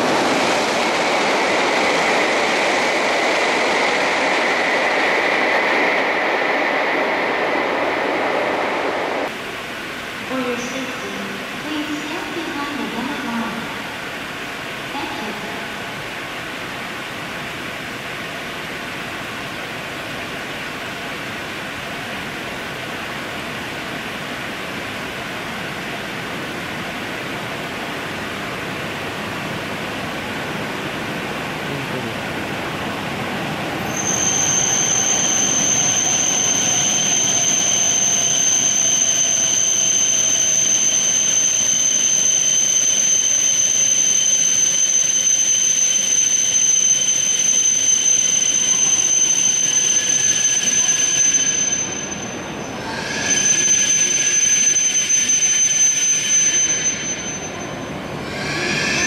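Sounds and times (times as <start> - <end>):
loud high-pitched whine: 0.0 - 59.0
rain hiss: 0.0 - 59.0
train pulling in and slowing: 0.0 - 59.0.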